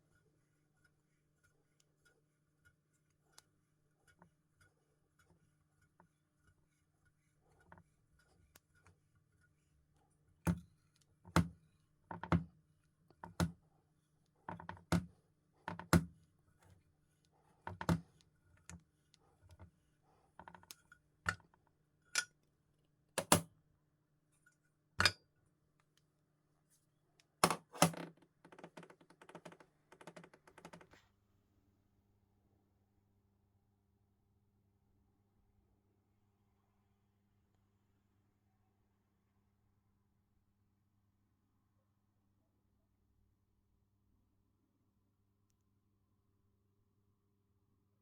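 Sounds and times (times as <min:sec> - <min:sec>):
metal parts and tools clicking: 0:25.0 - 0:25.2
rattle of small clicks: 0:27.8 - 0:31.0.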